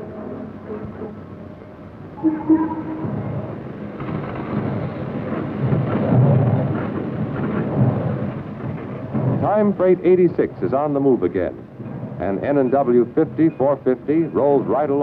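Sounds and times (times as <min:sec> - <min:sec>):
freight train rumble: 0:00.0 - 0:15.0
short steady tone: 0:02.2 - 0:03.7.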